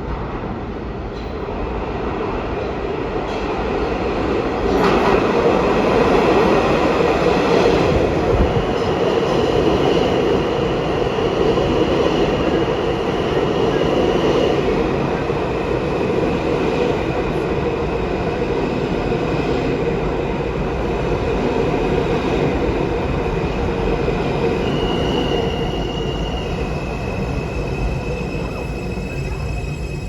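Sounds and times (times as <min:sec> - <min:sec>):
subway train rumbling: 0:00.0 - 0:30.0
high wheel squeal: 0:24.6 - 0:30.0.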